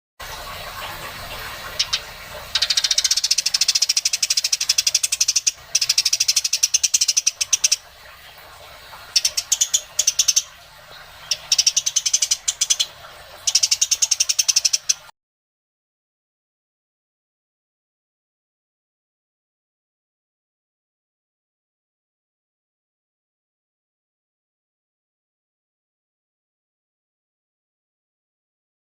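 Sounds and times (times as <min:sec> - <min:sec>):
nestlings chirping: 0:02.6 - 0:07.8, 0:09.1 - 0:10.6, 0:11.2 - 0:15.0.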